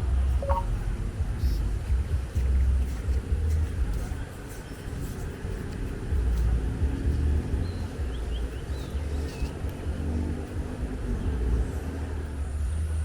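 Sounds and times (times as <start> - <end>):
wind buffeting microphone: 0.0 - 13.0
faint bird chirps: 0.4 - 0.7.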